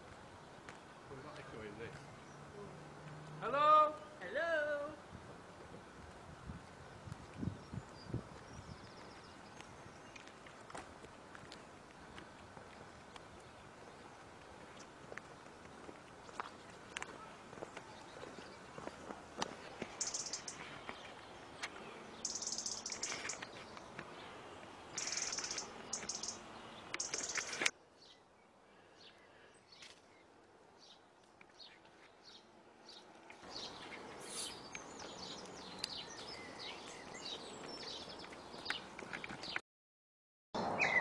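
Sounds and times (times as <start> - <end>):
outdoor background noise: 0.0 - 39.6, 40.6 - 41.0
birds chirping and trilling: 19.9 - 31.0, 31.6 - 39.6, 40.7 - 41.0.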